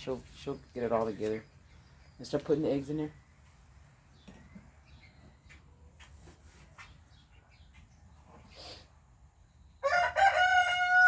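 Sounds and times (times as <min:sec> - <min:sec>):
faint taps and rustles: 0:04.2 - 0:08.4.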